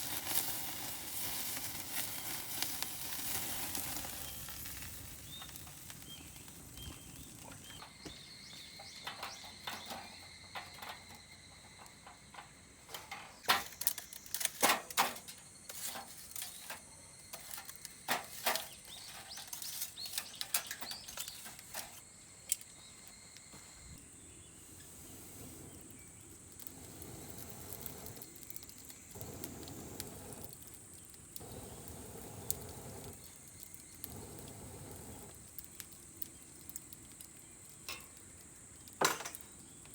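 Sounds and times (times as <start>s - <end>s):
insects buzzing: 0.0s - 39.9s
sharp clicks and cracks: 8.8s - 22.8s, 32.4s - 39.9s.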